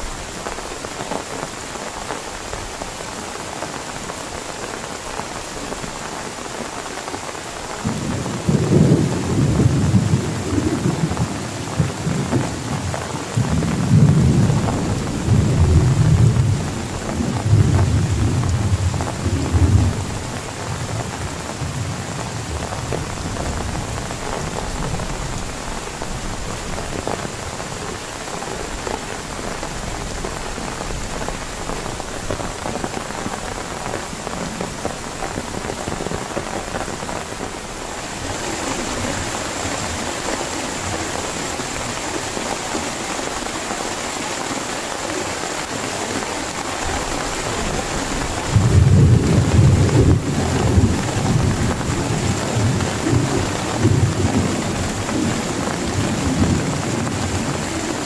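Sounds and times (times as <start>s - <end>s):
heavy rain falling: 0.0s - 58.0s
thunder rumbling: 7.8s - 27.2s, 47.0s - 58.0s.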